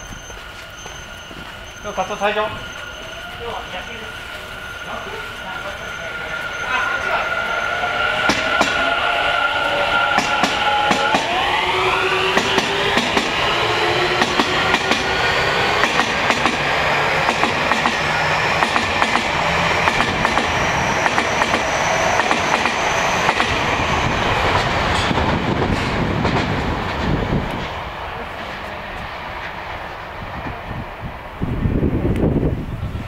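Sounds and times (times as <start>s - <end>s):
electric train motor whine: 0.1s - 26.2s
wheels clattering on rail joints: 10.0s - 30.8s.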